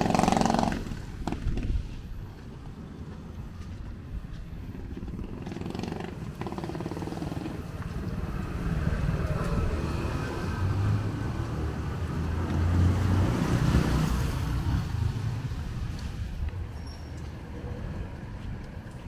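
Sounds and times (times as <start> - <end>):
vehicle passing on wet street: 5.3 - 16.4.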